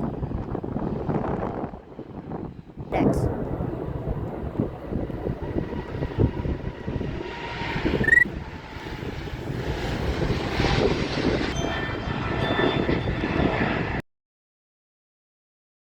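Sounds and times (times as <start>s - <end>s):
airliner engine rumbling: 0.0s - 14.0s
wind buffeting microphone: 0.0s - 14.0s
short high chirp: 8.0s - 8.3s.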